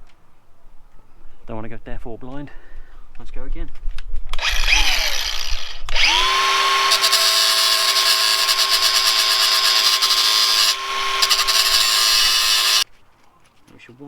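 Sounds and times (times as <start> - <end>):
cutting disc grinding metal chain: 4.4 - 12.8.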